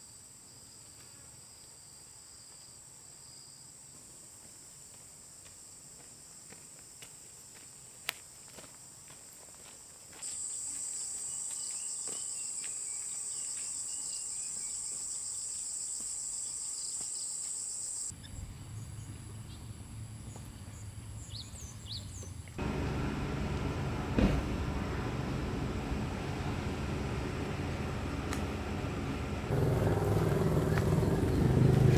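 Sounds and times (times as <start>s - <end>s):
high-pitched insect buzz: 10.2s - 18.1s.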